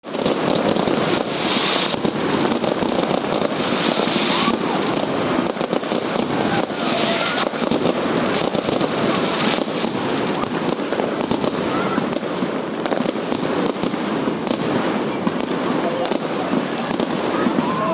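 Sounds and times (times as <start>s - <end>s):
fireworks crackling and popping: 0.0s - 17.9s.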